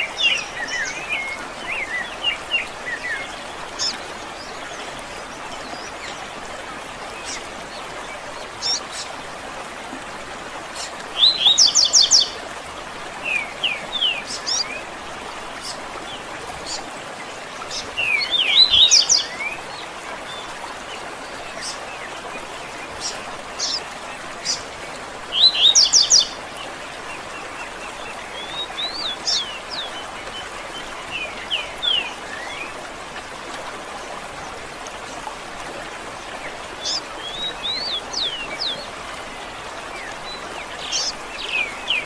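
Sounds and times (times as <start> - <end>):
songbirds singing: 0.0 - 9.2, 10.7 - 12.5, 13.2 - 33.0, 34.0 - 42.0.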